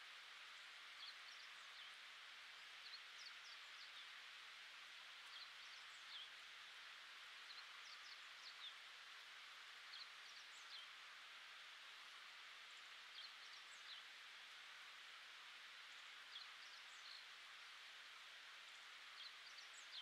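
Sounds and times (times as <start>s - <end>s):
steady hiss: 0.0s - 20.0s
small birds chirping: 0.6s - 4.3s, 15.8s - 17.4s, 18.6s - 20.0s.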